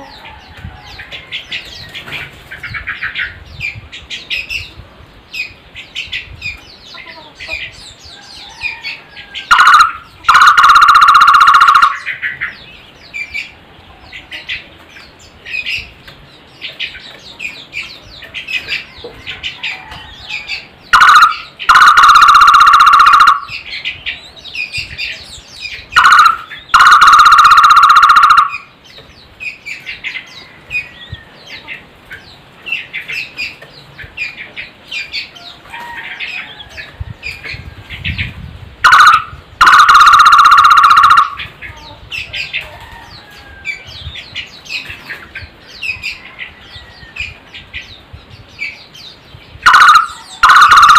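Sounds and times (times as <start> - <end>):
small birds chirping: 0.0 - 50.9
barbet calling loudly: 9.4 - 12.4, 21.0 - 23.6, 25.9 - 28.7, 38.8 - 41.5, 49.6 - 50.9.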